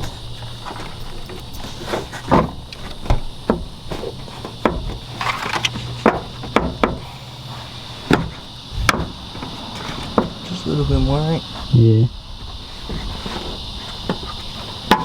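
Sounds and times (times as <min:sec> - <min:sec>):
parts being handled knocking: 0:00.0 - 0:07.2, 0:08.0 - 0:10.4, 0:12.8 - 0:15.0.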